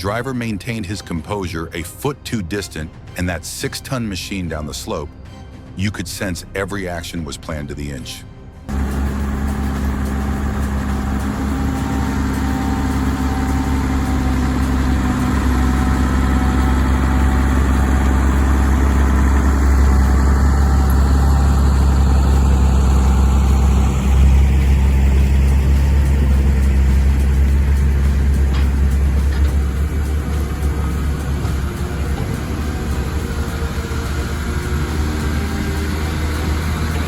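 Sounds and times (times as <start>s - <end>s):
bulldozer diesel engine running: 8.7s - 37.0s.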